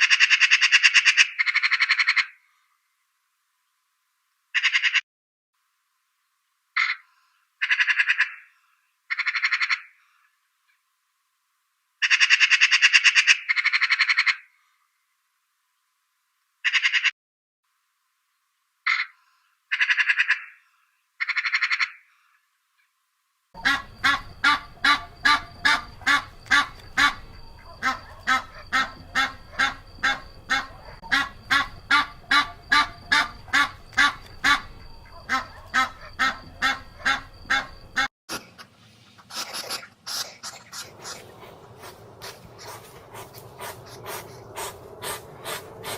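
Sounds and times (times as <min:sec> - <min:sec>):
different fainter animal call: 0:23.6 - 0:38.1
animal calls: 0:23.6 - 0:45.9.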